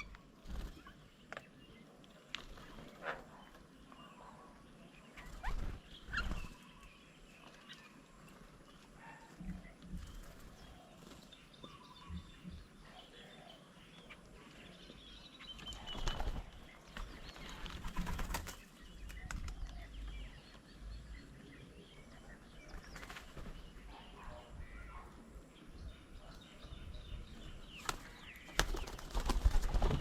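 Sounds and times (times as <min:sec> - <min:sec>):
birds chirping and calling: 0:00.0 - 0:30.0
bird wingbeats: 0:05.2 - 0:06.7, 0:15.7 - 0:19.7, 0:22.7 - 0:23.8, 0:27.7 - 0:30.0.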